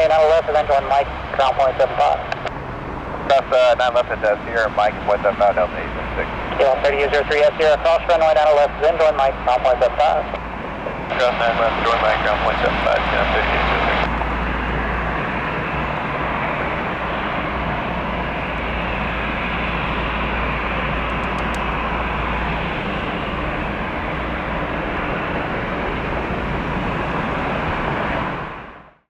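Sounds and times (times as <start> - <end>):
jet engine rushing: 0.0 - 29.0.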